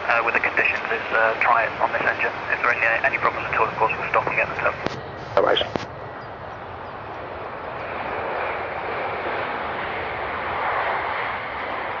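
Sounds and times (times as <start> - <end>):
jet engine rushing hiss: 0.4 - 5.9.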